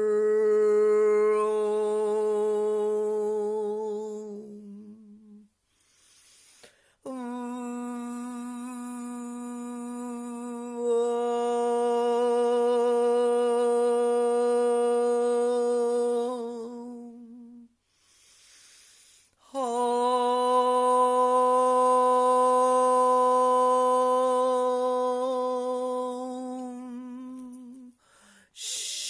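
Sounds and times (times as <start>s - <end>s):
person humming long notes: 0.0s - 5.4s, 7.1s - 17.7s, 19.5s - 27.9s
breath: 5.6s - 7.0s, 17.8s - 19.5s, 27.9s - 29.0s.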